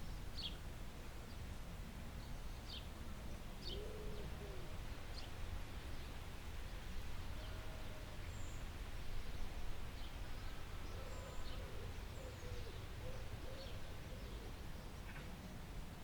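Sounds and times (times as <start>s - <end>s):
birds chirping: 8.2s - 15.3s.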